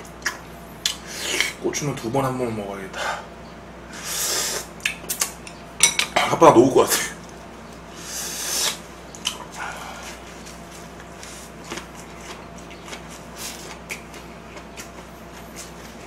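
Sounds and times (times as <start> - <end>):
person chewing food: 8.5 - 16.0.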